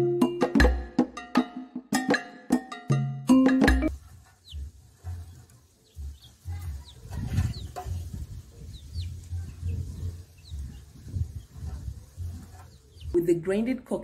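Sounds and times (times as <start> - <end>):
rustling: 3.9 - 13.2
small birds chirping: 3.9 - 13.2.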